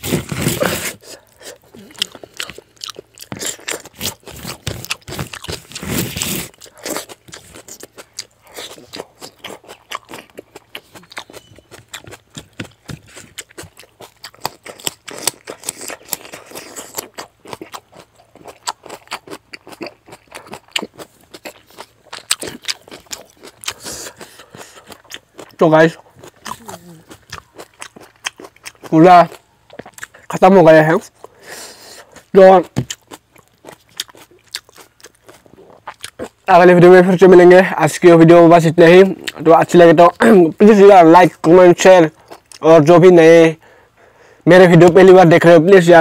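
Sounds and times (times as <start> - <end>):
chewing and crunching: 0.0 - 44.2
fingers scraping a leaf: 3.8 - 6.6.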